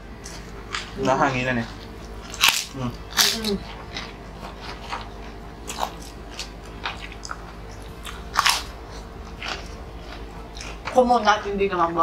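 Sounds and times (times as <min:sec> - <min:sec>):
crunchy snack chewing: 0:01.6 - 0:11.0.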